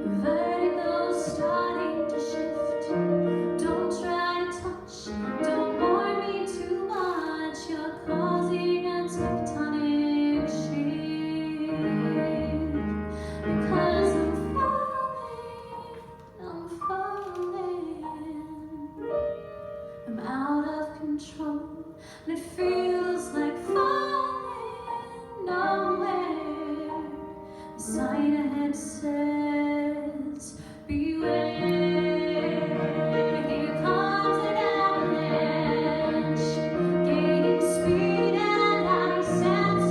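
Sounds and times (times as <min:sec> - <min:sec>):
piano accompaniment: 0:00.0 - 0:39.9
woman singing a ballad: 0:03.6 - 0:19.0, 0:20.1 - 0:32.6.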